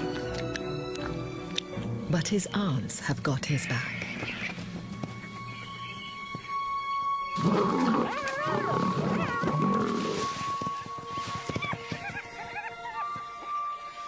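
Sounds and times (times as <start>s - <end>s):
lions growling and snarling: 7.4s - 10.3s.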